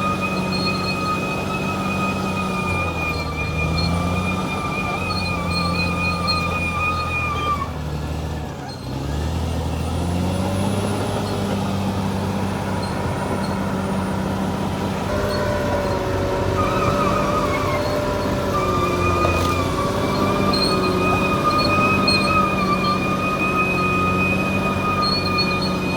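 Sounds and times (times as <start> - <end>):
high thin squealing: 0.0 - 7.9, 11.2 - 25.9
bulldozer diesel engine: 0.0 - 25.9.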